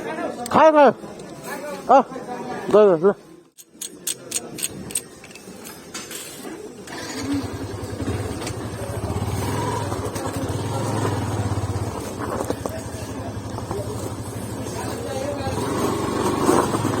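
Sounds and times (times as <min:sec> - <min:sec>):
motorcycle engine running: 0:06.9 - 0:17.0.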